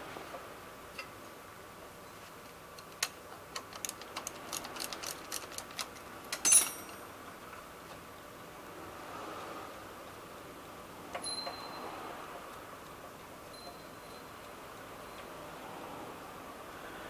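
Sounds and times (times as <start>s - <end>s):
metallic clink with ring: 6.4s - 7.0s, 11.2s - 11.9s, 13.5s - 14.4s.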